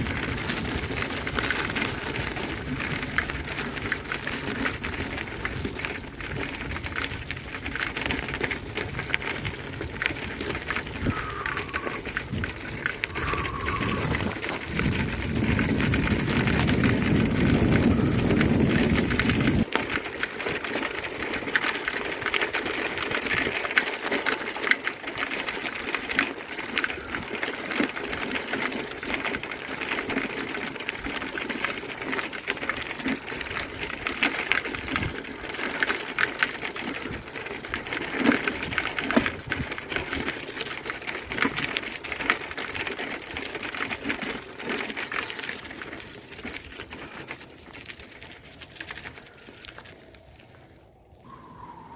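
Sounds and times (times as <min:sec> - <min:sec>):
bicycle clicking rattle: 0:00.0 - 0:51.9
low rumble: 0:50.0 - 0:51.9.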